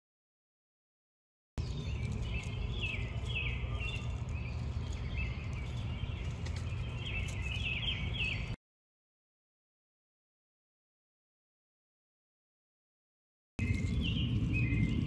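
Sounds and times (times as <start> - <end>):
low steady rumble: 1.6 - 8.6, 13.6 - 15.0
small birds chirping: 1.6 - 8.6, 13.6 - 15.0.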